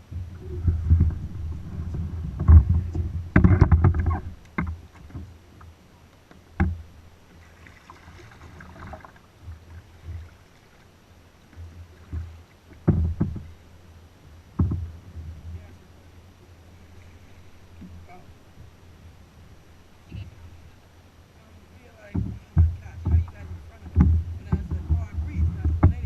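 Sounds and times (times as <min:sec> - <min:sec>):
kayak paddle knocking on hull: 0:00.0 - 0:05.3, 0:06.3 - 0:06.9, 0:08.2 - 0:10.4, 0:11.5 - 0:13.6, 0:14.5 - 0:15.7, 0:22.0 - 0:26.0.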